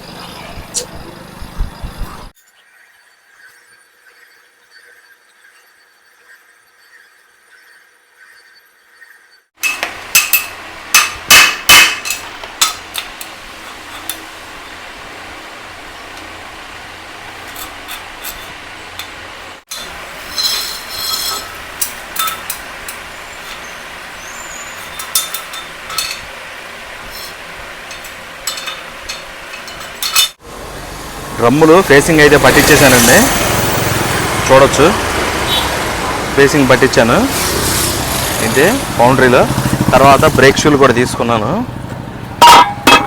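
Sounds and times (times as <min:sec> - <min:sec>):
steady background hum: 0:00.0 - 0:43.0
metallic strikes and clinks: 0:42.5 - 0:43.0.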